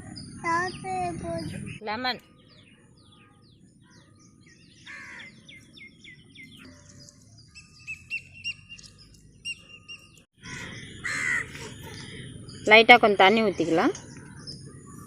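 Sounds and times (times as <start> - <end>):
outdoor background noise: 0.0 - 15.0
wild birds chirping: 0.0 - 15.0.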